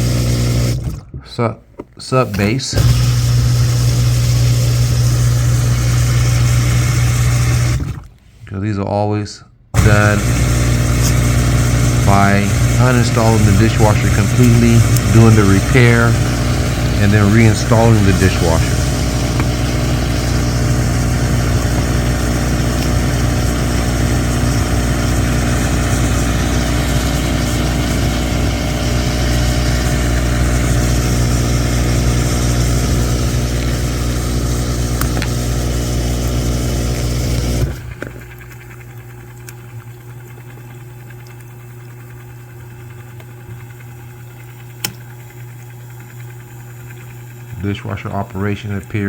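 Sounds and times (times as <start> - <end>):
pump motor humming: 0.0 - 1.1, 2.2 - 8.2, 9.7 - 49.0
water spraying: 2.2 - 7.8, 9.8 - 37.7.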